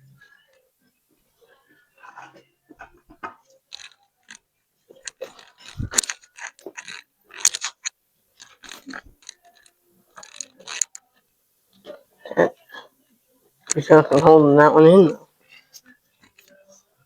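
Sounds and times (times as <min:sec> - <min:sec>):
metal tools clicking and scraping: 0:03.7 - 0:11.2.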